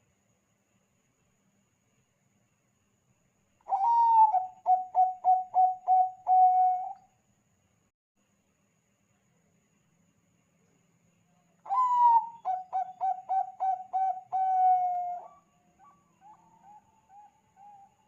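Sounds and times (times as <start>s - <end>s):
dove cooing: 3.7s - 7.0s, 11.7s - 17.9s.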